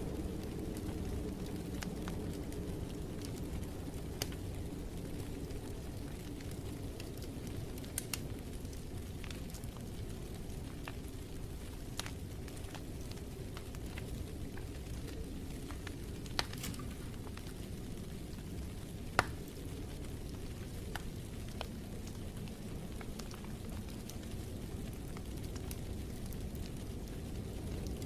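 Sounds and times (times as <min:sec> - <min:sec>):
fire popping: 0:00.0 - 0:28.0
wood fire crackling: 0:00.0 - 0:28.0.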